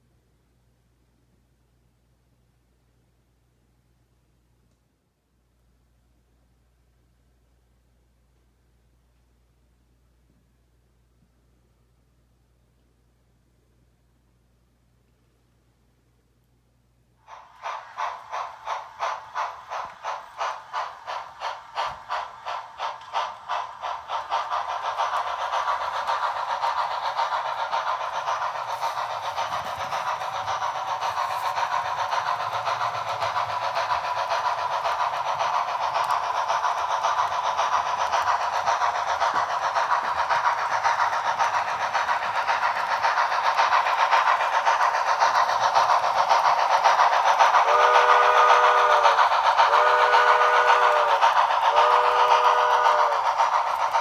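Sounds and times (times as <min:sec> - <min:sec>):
steam locomotive chuffing: 0:17.2 - 0:54.0.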